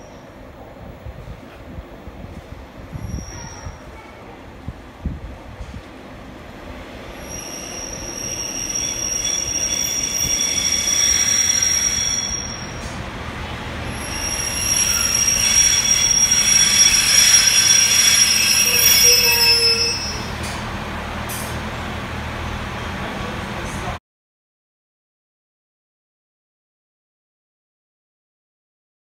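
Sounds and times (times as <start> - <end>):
diesel railbus slowing to a stop: 0.0 - 24.0
high-pitched wheel and brake squeal: 2.9 - 4.0, 7.2 - 13.0, 13.9 - 20.6.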